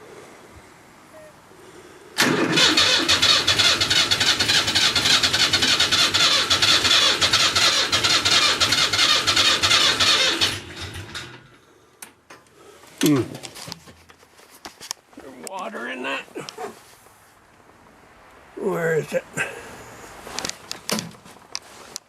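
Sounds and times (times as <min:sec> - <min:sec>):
diesel engine cranking: 0:02.2 - 0:11.6.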